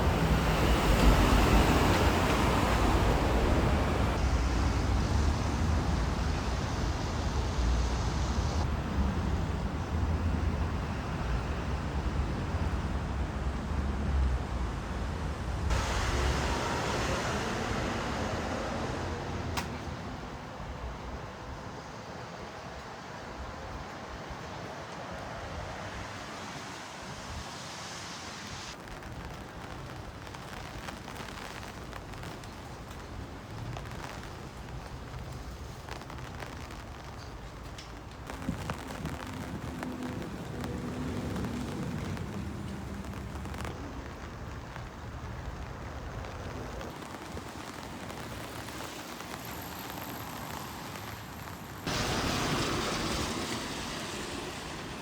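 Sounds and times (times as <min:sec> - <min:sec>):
train running noise: 0:00.0 - 0:28.7, 0:32.2 - 0:55.0
sudden loud rush: 0:15.6 - 0:20.2.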